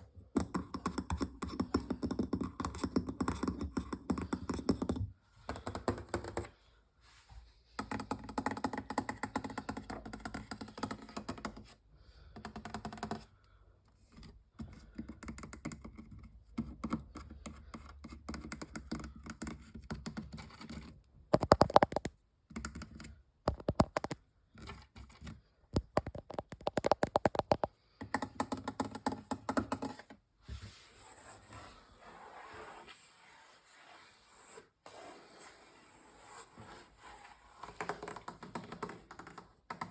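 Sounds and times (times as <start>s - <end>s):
fingers tapping on hard objects: 0.3s - 6.5s, 7.8s - 11.7s, 14.6s - 20.4s, 21.3s - 24.2s, 25.8s - 30.0s.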